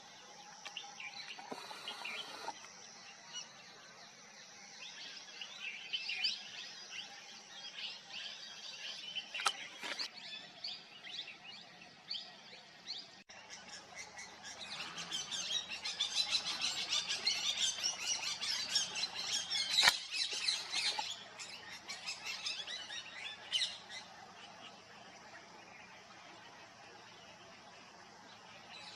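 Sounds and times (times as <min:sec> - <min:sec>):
parakeets calling: 0:14.0 - 0:21.2.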